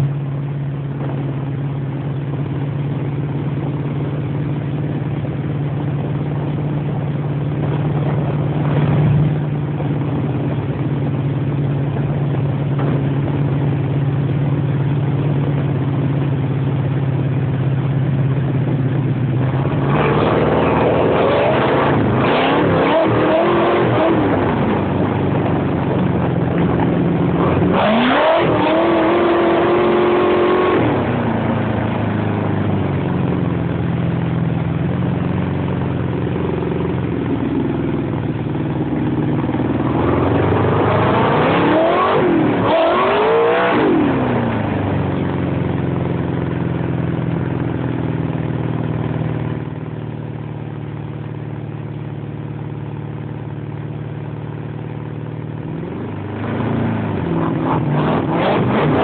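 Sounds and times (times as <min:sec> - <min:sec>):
engine revving: 0:19.4 - 0:32.6, 0:39.0 - 0:46.1, 0:55.7 - 0:59.0.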